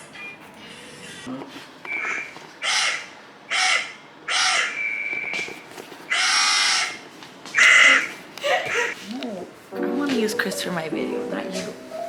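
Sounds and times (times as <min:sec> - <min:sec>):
bird cawing: 0:02.0 - 0:05.1, 0:06.1 - 0:07.0, 0:07.6 - 0:08.1.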